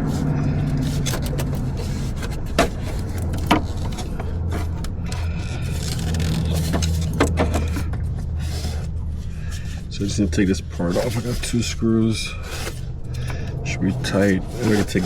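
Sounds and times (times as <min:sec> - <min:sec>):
steady low hum: 0:00.0 - 0:15.0
hand tools clicking and knocking: 0:00.7 - 0:08.1.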